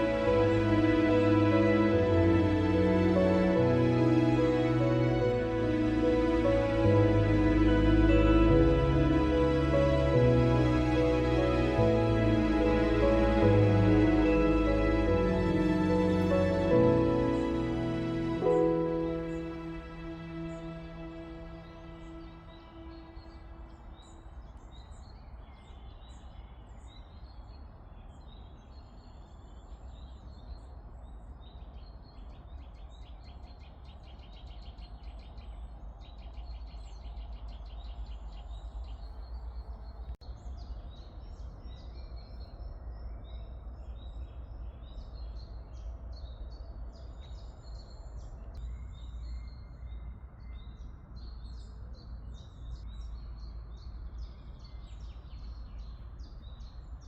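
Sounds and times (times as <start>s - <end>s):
low background rumble: 0.0s - 24.1s.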